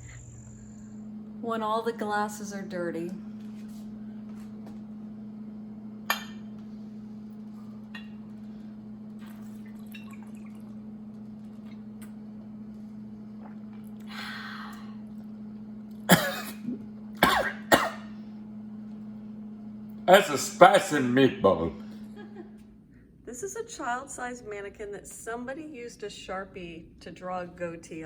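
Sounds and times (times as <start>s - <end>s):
low electrical hum: 0.0s - 28.0s
person coughing: 16.1s - 18.1s, 20.2s - 21.1s.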